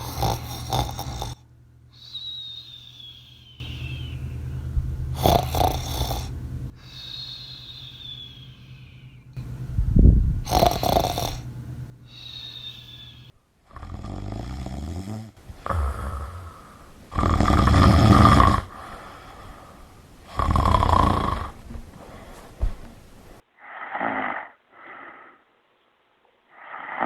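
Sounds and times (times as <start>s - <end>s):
person snoring: 0.0s - 1.4s, 5.1s - 8.5s, 10.4s - 11.5s, 12.1s - 25.4s
quiet breathing: 0.0s - 9.7s, 10.4s - 25.6s.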